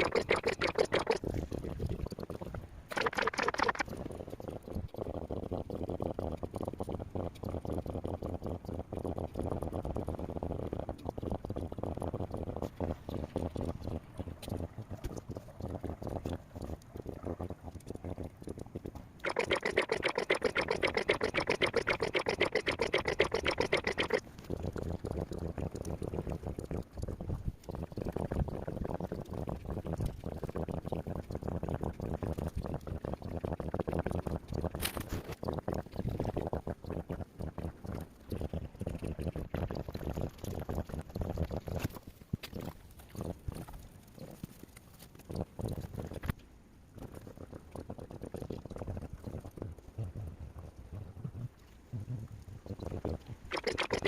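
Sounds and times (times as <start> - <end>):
low steady rumble: 34.2 - 53.6.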